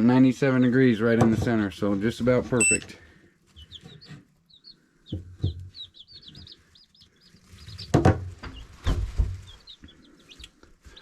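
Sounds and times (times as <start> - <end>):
baby chicks peeping: 0.0 - 11.0
knocks or rustles: 7.7 - 9.7.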